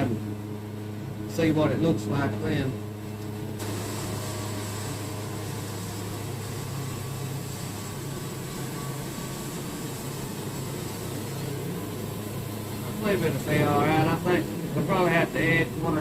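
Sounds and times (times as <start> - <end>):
band sawmill sawing a log: 3.6 - 16.0.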